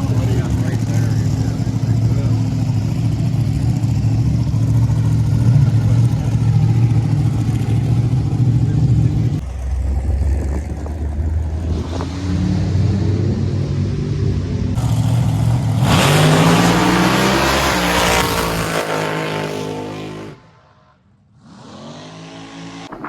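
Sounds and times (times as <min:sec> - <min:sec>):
car engine running: 0:00.0 - 0:16.2.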